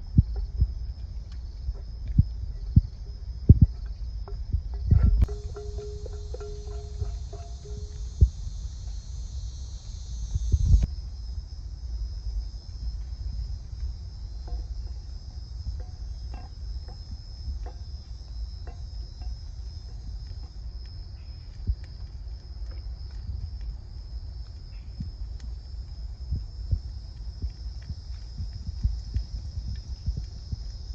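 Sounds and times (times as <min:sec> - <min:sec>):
low rumble: 0:00.0 - 0:11.2
crickets chirring: 0:00.0 - 0:30.9
faint clicks: 0:24.4 - 0:30.7.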